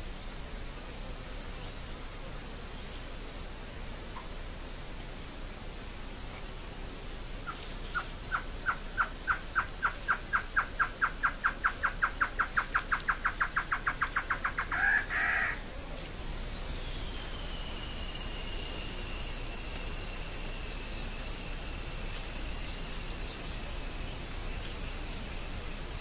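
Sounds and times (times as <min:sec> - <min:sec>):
high insect whine: 0:00.0 - 0:26.0
lower insect tone: 0:00.0 - 0:26.0
bird calling: 0:07.4 - 0:15.7.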